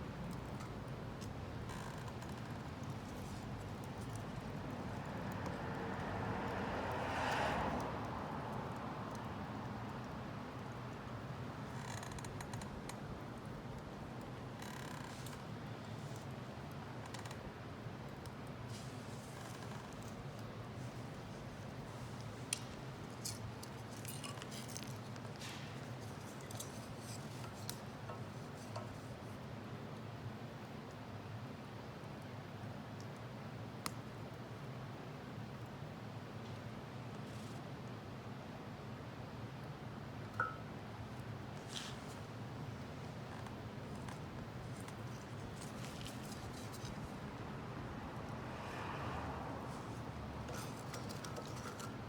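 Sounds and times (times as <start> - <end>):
stove fire rushing: 49.7 - 52.0.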